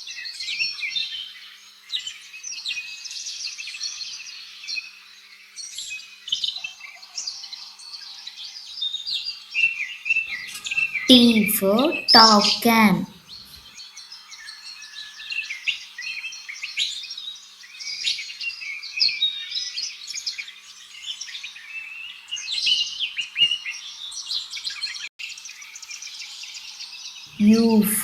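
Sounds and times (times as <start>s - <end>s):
birds chirping: 10.4s - 13.1s, 27.4s - 28.0s.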